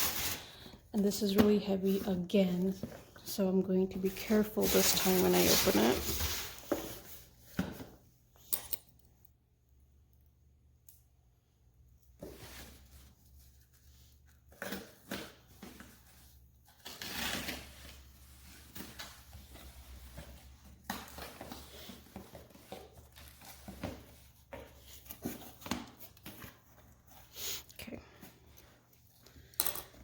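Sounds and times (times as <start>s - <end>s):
cardboard packaging rustling: 0.0s - 3.3s, 3.9s - 7.9s.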